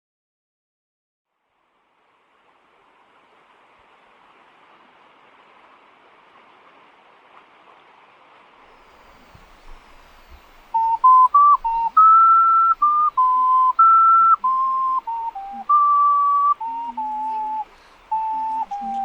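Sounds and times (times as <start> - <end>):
faint background hiss: 1.3 - 19.0
ocarina melody: 8.7 - 19.0
lower second line of notes: 8.9 - 19.0.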